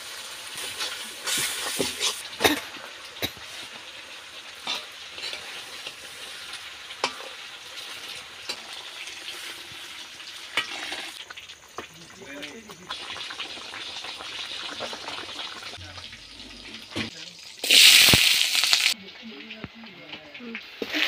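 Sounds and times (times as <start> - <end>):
curry sizzling in a wok: 0.0 - 21.0
spatula scraping metal wok: 0.6 - 2.2, 4.6 - 11.2.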